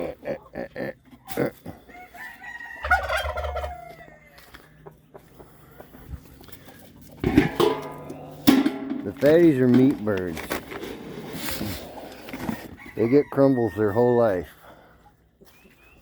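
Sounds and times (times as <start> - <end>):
chickens clucking: 0.0 - 9.7, 11.1 - 16.0
rooster crowing: 1.9 - 4.6, 12.8 - 14.5.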